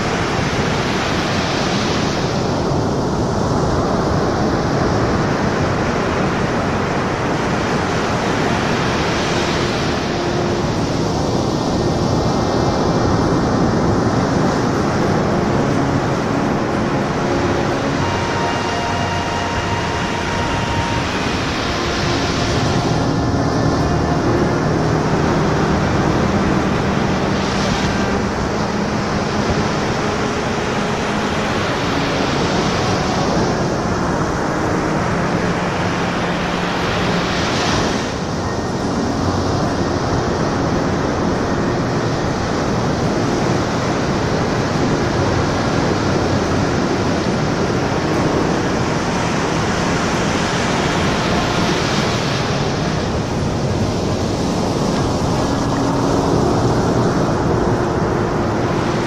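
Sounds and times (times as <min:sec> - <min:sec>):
ocean surf breaking on beach: 0:00.0 - 0:59.0.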